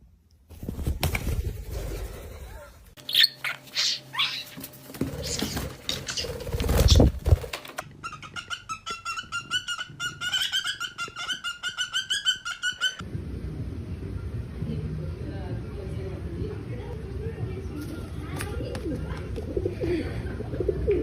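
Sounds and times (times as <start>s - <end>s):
parrot rapid calls: 2.4s - 7.2s, 7.9s - 13.0s.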